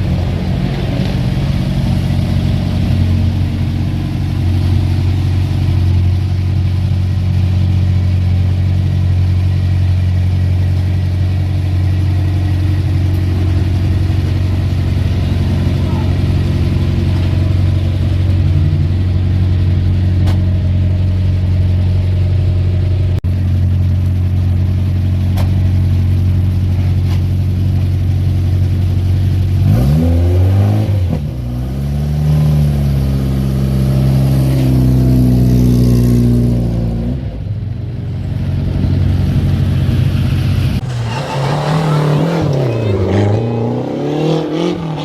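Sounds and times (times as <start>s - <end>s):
rally car engine revving: 29.5s - 37.4s, 38.9s - 45.0s.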